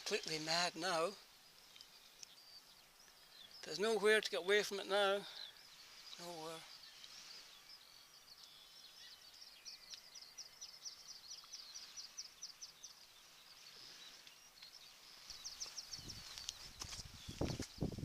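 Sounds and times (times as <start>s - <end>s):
small songbirds chirping: 0.0s - 18.0s.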